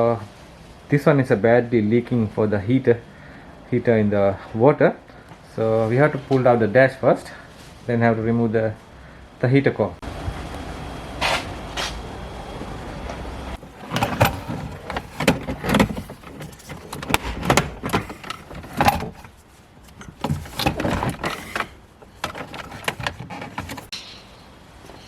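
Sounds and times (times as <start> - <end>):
knocks clicks and scrapes of parts: 12.6 - 24.3.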